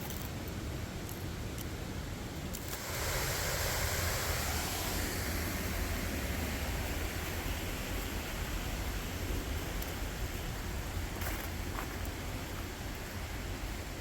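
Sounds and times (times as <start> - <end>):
waterfall rushing: 2.6 - 14.0.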